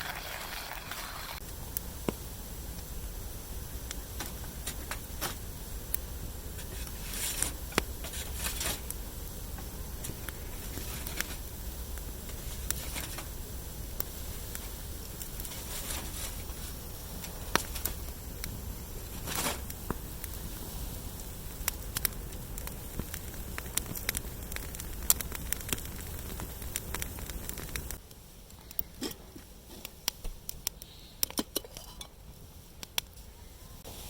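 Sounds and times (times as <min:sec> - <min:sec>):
campfire crackling: 0:00.0 - 0:34.0
burning wood popping: 0:00.1 - 0:33.3.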